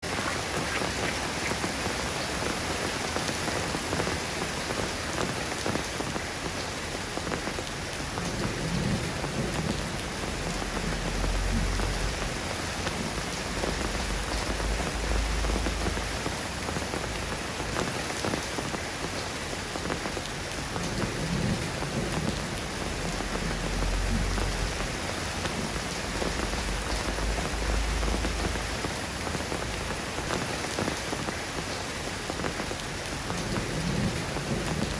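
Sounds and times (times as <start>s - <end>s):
soft rain falling: 0.0s - 34.9s
long low rumbles: 9.3s - 17.4s, 21.8s - 30.2s.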